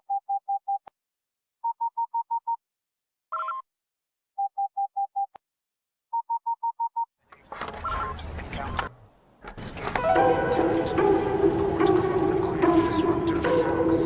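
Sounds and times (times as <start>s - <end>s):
electronic beeps: 7.8s - 8.4s.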